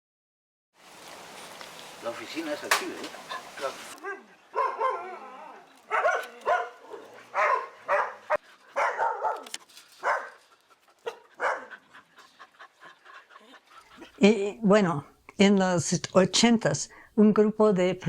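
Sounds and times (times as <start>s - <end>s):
dogs barking: 2.6s - 14.2s.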